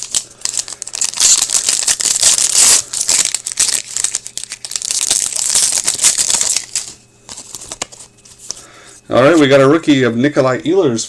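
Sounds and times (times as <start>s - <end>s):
wrapper crinkling: 0.0s - 8.6s.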